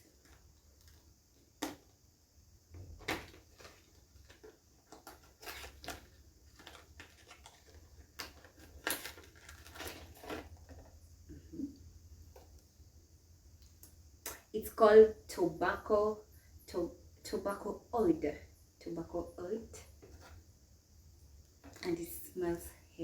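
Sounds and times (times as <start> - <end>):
faint low hum: 0.0 - 23.0
packaging clicks and crinkles: 3.0 - 11.0.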